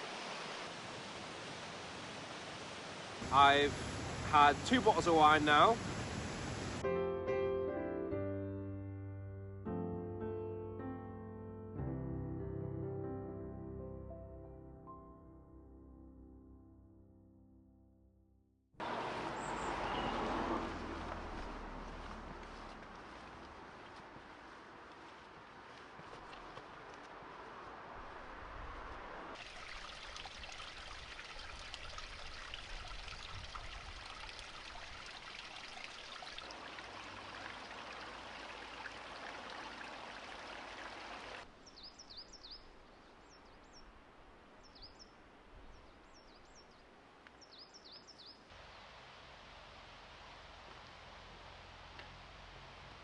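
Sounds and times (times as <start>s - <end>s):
rushing water: 0.0s - 6.9s, 18.8s - 46.1s, 48.3s - 53.0s
small bird chirping: 41.6s - 42.7s.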